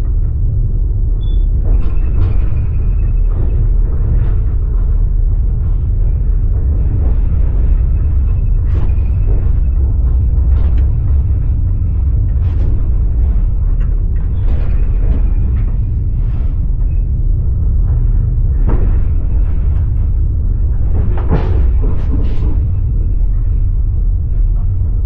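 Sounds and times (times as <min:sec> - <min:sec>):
train carriage rumbling on rails: 0:00.0 - 0:25.0.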